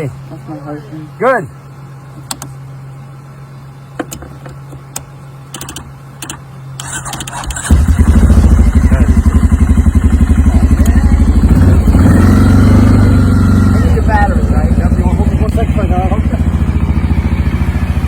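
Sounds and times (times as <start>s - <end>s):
engine cranking: 5.5s - 8.6s
motorcycle engine idling: 7.6s - 18.0s.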